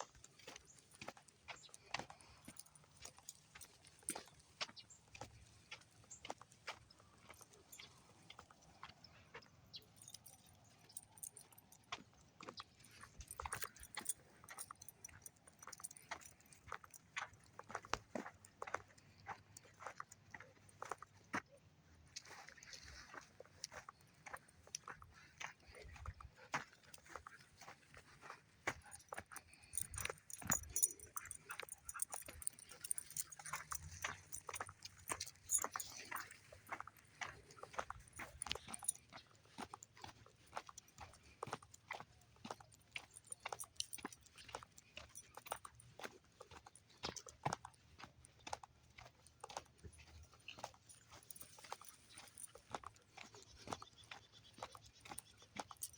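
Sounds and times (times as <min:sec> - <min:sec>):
light jingling: 0:09.7 - 0:19.0, 0:23.6 - 0:55.9
crunching footsteps: 0:22.2 - 0:42.0.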